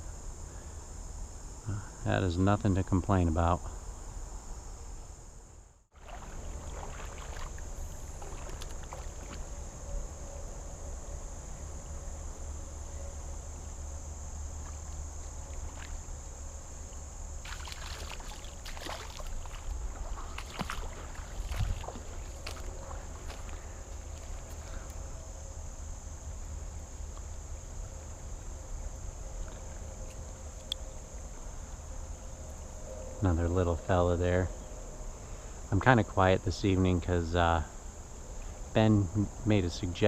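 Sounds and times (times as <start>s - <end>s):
crickets chirring: 0.0s - 40.0s
moving water: 5.9s - 9.7s, 14.5s - 25.0s
clicks and splashes: 6.0s - 9.4s, 17.4s - 23.6s.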